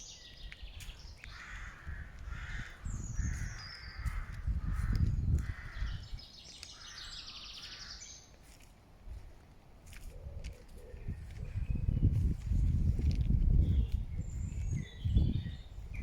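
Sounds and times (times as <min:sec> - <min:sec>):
crow cawing: 0:01.2 - 0:06.0, 0:06.7 - 0:08.1.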